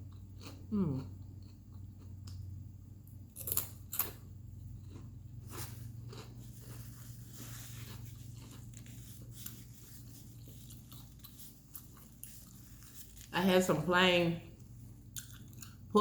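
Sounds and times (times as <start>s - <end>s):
chewing and crunching food: 0.0s - 13.6s, 14.5s - 16.0s
low steady hum: 0.0s - 16.0s.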